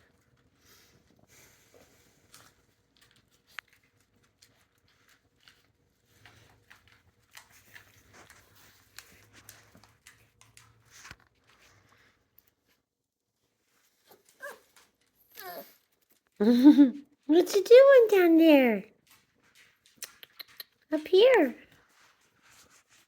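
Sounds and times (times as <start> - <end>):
puppies rustling: 0.0 - 23.0.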